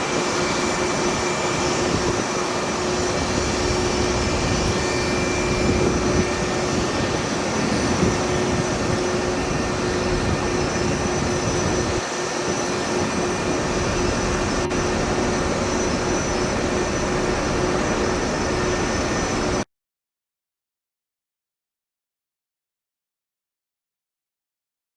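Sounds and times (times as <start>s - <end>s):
jet engines running: 0.0s - 19.6s.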